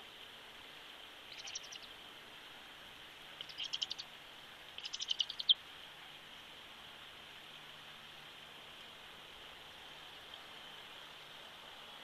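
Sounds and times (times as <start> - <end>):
steady background hiss: 0.0 - 12.0
bird chipping: 1.3 - 1.9, 3.4 - 4.1, 4.8 - 5.6.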